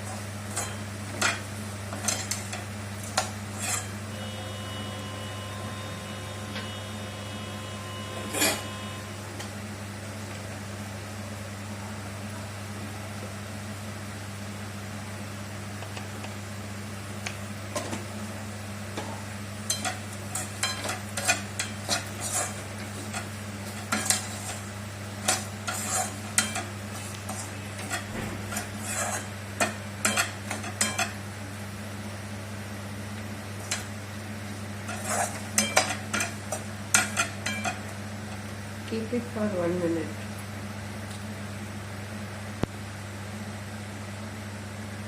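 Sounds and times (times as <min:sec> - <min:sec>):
steady low hum: 0:00.0 - 0:44.2
metal ladle scraping in a pan: 0:03.2 - 0:04.0, 0:21.2 - 0:22.6, 0:25.2 - 0:29.4, 0:34.9 - 0:35.8.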